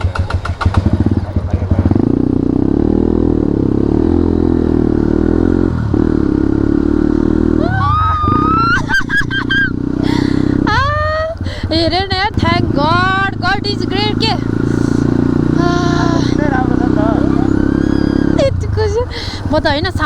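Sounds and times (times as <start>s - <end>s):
motorcycle engine idling: 0.0s - 20.0s
high wavering pitched sounds: 15.6s - 18.6s.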